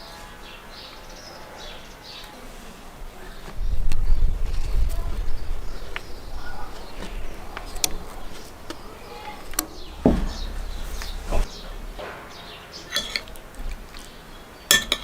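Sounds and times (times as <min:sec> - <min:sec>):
birds chirping: 0:00.0 - 0:14.8
wind rumble on microphone: 0:03.5 - 0:12.6.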